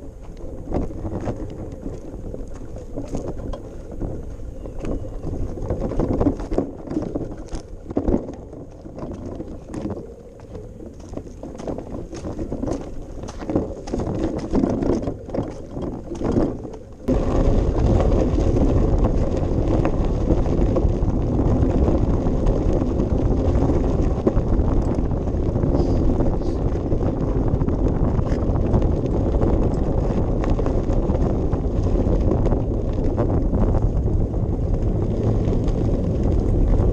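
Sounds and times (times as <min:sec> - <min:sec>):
bicycle tyres rumbling on path: 0:00.0 - 0:36.9
wind noise on microphone: 0:00.0 - 0:36.9
clicks and rattles: 0:00.3 - 0:17.1.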